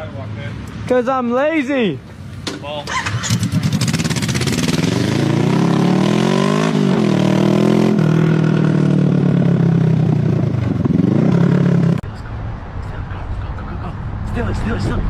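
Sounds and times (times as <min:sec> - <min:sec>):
motorcycle engine accelerating: 0:02.9 - 0:12.0.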